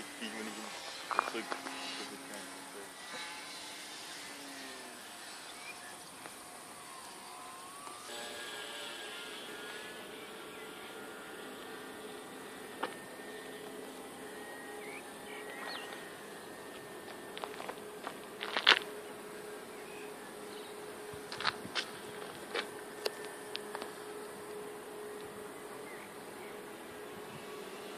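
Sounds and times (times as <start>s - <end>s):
model airplane motor buzzing: 0.0s - 27.9s.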